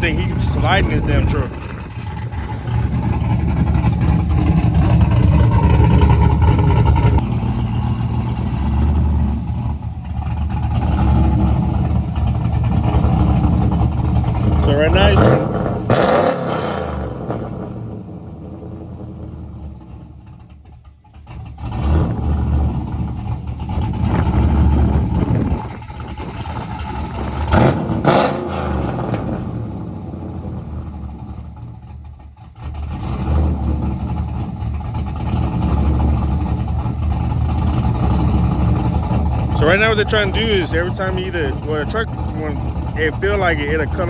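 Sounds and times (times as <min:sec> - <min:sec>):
wind buffeting microphone: 0:00.0 - 0:07.2, 0:23.7 - 0:27.7
truck engine revving: 0:00.0 - 0:20.4, 0:21.5 - 0:31.8, 0:32.5 - 0:44.0.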